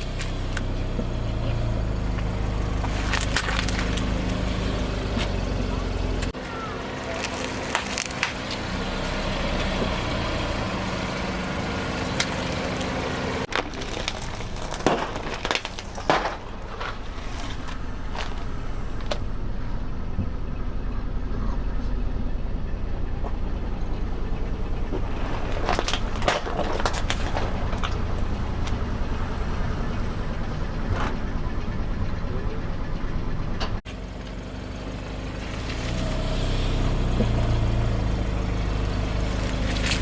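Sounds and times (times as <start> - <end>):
objects cracking under tyres: 0.0 - 10.0, 11.6 - 19.4, 24.7 - 29.3, 33.9 - 40.0
car engine running slowly: 0.0 - 40.0.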